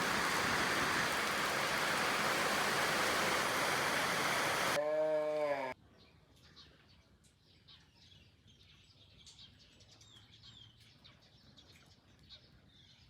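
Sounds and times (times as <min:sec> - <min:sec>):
steady rain: 0:00.0 - 0:04.8.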